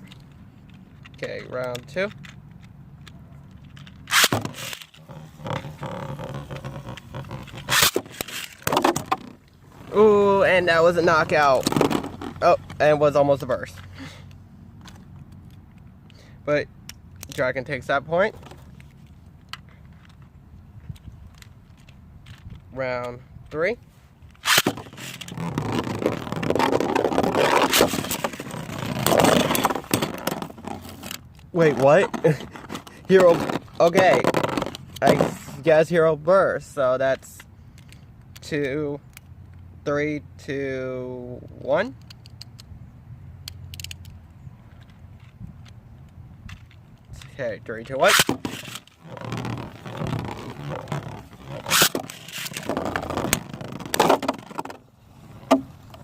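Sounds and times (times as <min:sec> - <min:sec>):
spinning tops whirring and scraping: 0:04.0 - 0:12.4, 0:24.4 - 0:31.2, 0:48.0 - 0:54.8.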